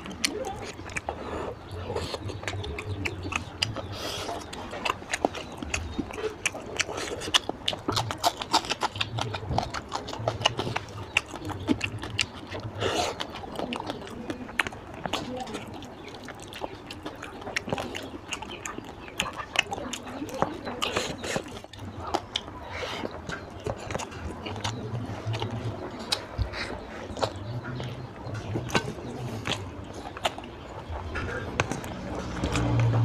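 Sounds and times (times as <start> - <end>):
sticky mouth clicks: 0.0 - 33.0
wet chewing and lip-smacking: 0.0 - 33.0.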